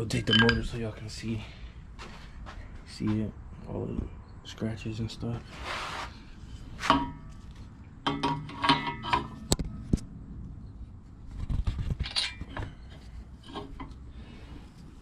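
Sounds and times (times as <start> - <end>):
metal clinks and clanks: 0.2 - 0.8, 8.1 - 9.5, 12.0 - 12.8.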